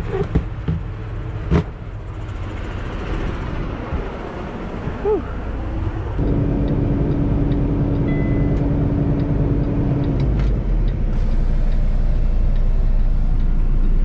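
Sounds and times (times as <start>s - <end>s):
diesel truck engine idling: 4.4s - 14.0s.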